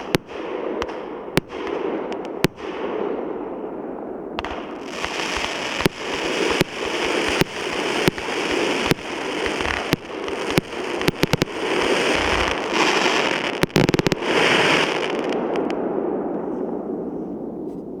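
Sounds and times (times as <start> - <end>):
firework crackling: 4.4 - 15.7
firework reports: 4.4 - 15.7.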